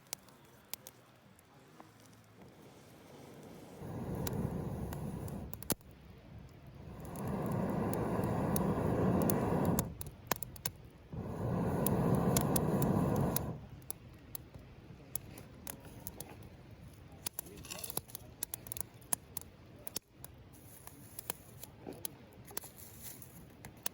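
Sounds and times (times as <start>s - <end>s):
campfire crackling and popping: 0.0s - 23.9s
breath blown onto fire: 3.1s - 5.8s, 6.7s - 10.1s, 11.1s - 13.7s.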